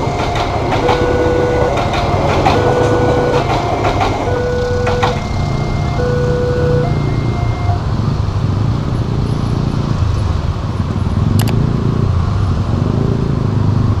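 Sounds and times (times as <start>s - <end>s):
crossing electronic warning tones: 0.0s - 8.0s
vehicle engines running: 0.0s - 14.0s
sharp click: 11.4s - 11.6s.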